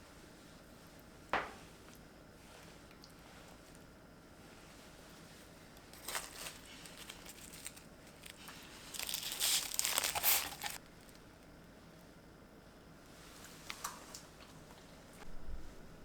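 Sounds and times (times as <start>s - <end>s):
crinkling as something is crumpled: 5.1s - 11.4s.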